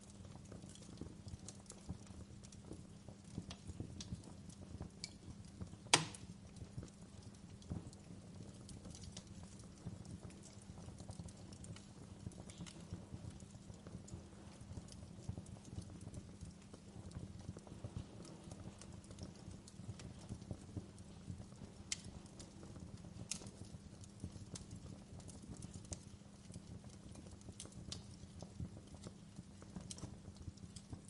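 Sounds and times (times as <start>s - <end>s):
campfire crackling: 0.0s - 31.0s
sharp fire pops: 4.8s - 6.4s, 11.5s - 26.1s.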